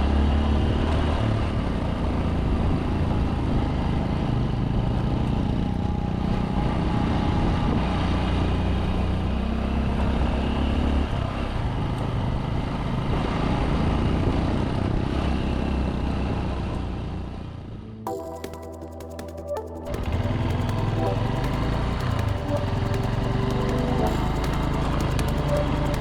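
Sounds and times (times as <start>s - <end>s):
motorbike engine running: 18.1s - 26.0s.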